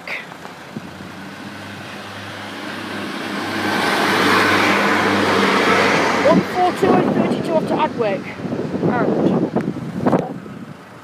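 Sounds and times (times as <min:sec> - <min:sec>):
wheels rushing on rails: 0:00.5 - 0:08.5.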